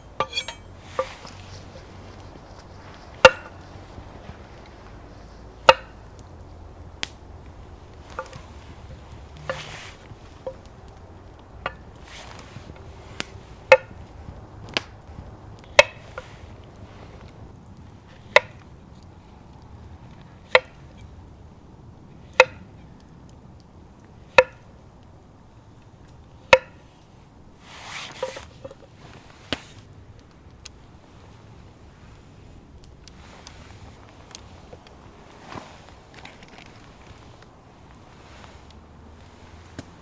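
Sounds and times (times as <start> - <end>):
short rustle: 0.0 - 10.7, 11.7 - 15.4, 27.6 - 30.0, 30.7 - 40.0.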